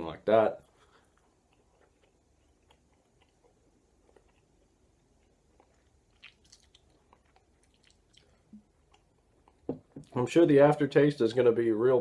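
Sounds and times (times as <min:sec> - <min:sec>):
man chewing tobacco clicks: 0:00.9 - 0:10.2.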